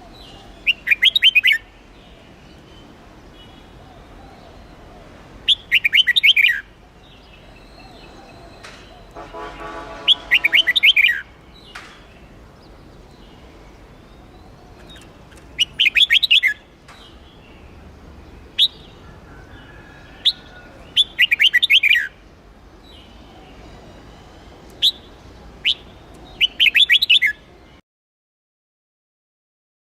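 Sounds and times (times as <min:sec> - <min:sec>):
sharp bird notes: 0:07.6 - 0:12.0, 0:13.5 - 0:17.2, 0:20.3 - 0:22.2, 0:22.9 - 0:27.5
bird rapid chirping: 0:08.5 - 0:11.2, 0:14.8 - 0:17.2, 0:20.4 - 0:22.2, 0:24.7 - 0:27.4.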